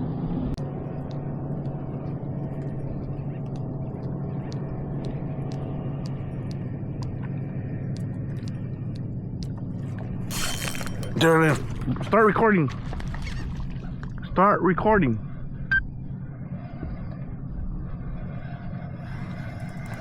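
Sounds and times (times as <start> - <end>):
low motor hum: 0.0 - 20.0
faint light ticks: 1.0 - 9.7.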